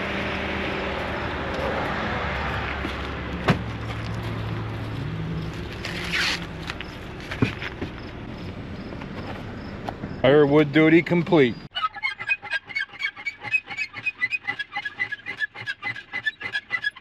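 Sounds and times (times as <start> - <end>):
car engine hum: 0.0 - 11.7
road noise: 0.0 - 17.0.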